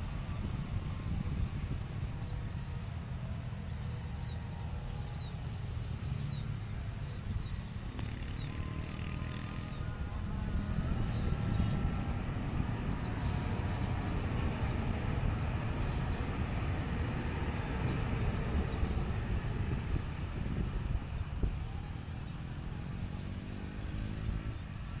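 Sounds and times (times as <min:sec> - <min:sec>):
helicopter flying: 0:00.0 - 0:25.0.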